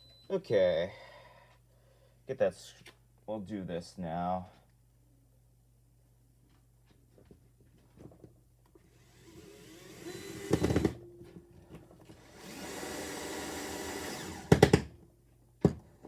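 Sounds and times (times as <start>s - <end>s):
power drill driving screw into wood: 8.9s - 11.0s, 12.1s - 14.9s.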